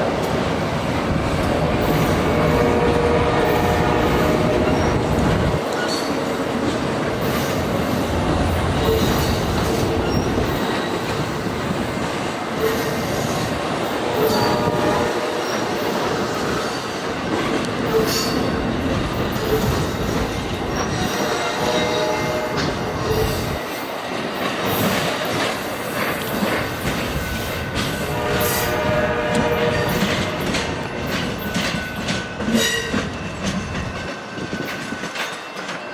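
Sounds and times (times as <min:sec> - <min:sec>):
train rumbling past: 0:00.0 - 0:35.9
train wheel squeals: 0:03.4 - 0:06.4, 0:08.7 - 0:11.8, 0:12.6 - 0:17.0, 0:17.8 - 0:35.9.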